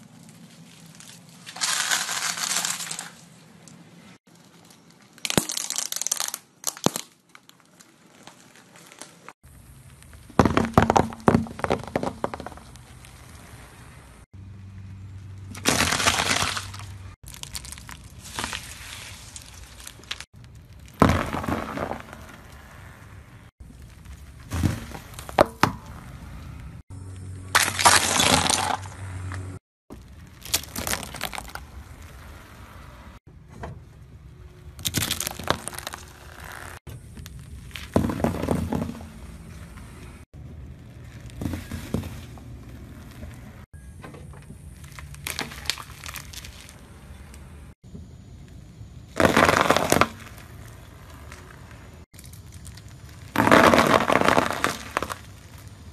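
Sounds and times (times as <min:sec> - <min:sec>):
celery sticks crunching under tyre: 0:00.0 - 0:10.4, 0:15.4 - 0:23.0, 0:27.5 - 0:32.4, 0:34.8 - 0:38.0, 0:44.6 - 0:47.5, 0:49.1 - 0:55.9
ball crackling under tyre: 0:00.0 - 0:14.2, 0:15.3 - 0:33.0, 0:34.7 - 0:55.9.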